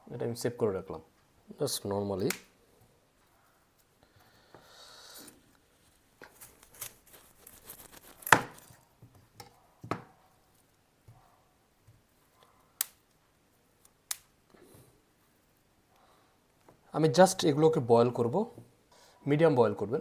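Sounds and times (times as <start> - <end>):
knife cutting broccoli on board: 6.3 - 8.7.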